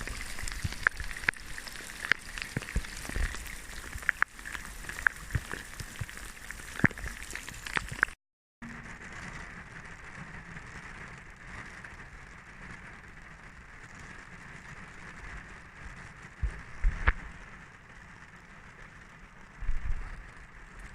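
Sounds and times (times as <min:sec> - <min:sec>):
rain hissing: 0:00.0 - 0:08.2.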